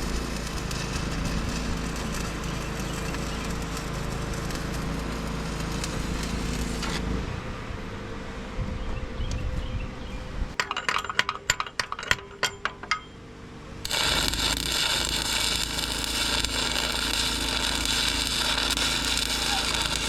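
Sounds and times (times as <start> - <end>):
welding arc crackling: 0.0 - 7.0, 13.8 - 20.0
metallic taps and clinks: 10.6 - 13.2.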